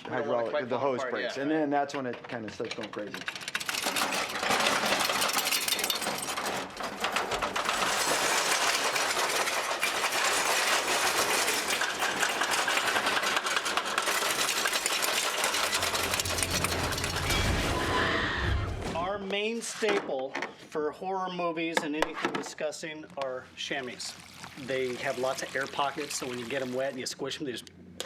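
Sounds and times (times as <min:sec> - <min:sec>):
rapid clattering and rattling: 0:02.0 - 0:17.8.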